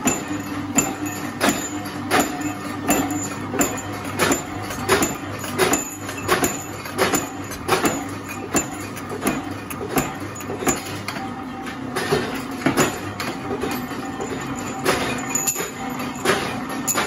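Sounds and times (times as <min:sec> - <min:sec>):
punch press clacking: 0:00.0 - 0:11.3, 0:11.9 - 0:17.0.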